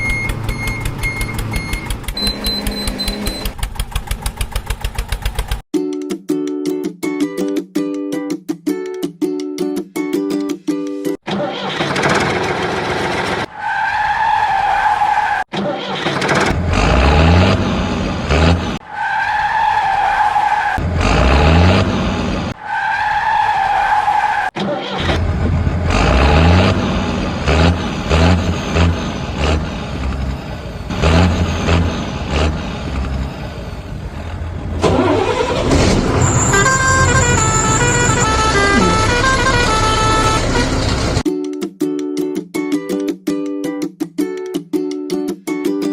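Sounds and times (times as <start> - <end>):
engine revving in pulses: 0.0 - 5.6, 16.2 - 18.8, 20.8 - 22.6, 25.1 - 41.2.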